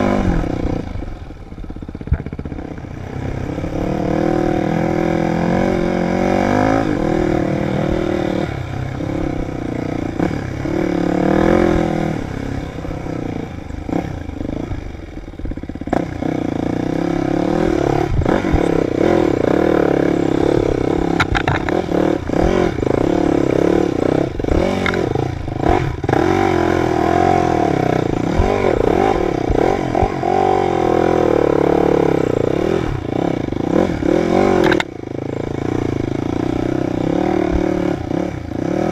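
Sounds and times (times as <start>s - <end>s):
dirt bike engine revving: 0.0s - 38.9s
knocks and clatter: 21.2s - 21.8s.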